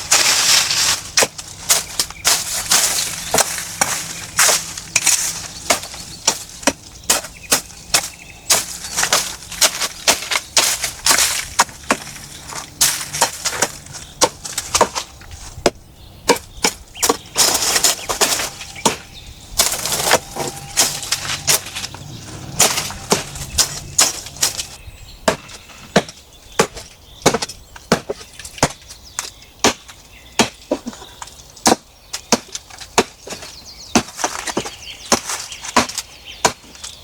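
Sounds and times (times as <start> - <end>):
dry wood cracking and snapping: 0.0 - 15.7, 16.4 - 24.8.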